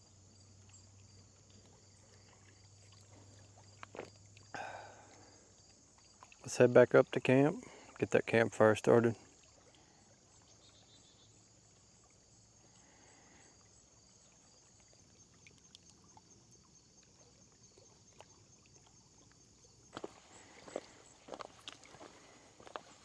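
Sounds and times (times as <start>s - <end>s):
high pulsing insect chirr: 9.2s - 23.0s.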